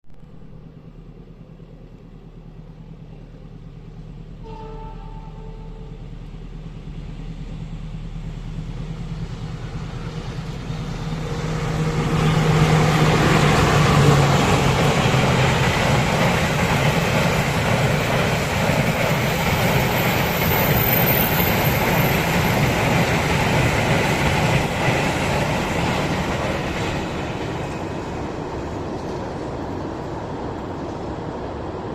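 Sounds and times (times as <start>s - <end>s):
train horn blast: 4.4s - 6.1s
locomotive engine passing: 5.0s - 31.9s
train coaches clattering on rails: 9.9s - 31.9s.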